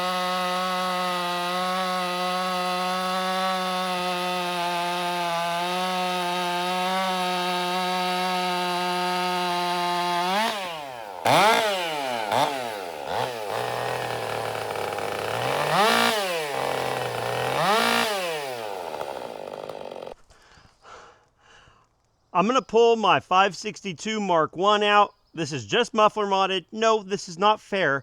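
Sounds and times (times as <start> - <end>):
chainsaw revving and idling: 0.0 - 20.3.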